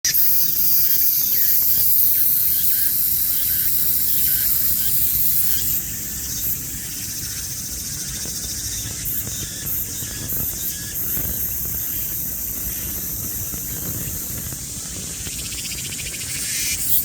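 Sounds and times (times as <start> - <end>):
cicada buzzing: 0.0 - 17.0.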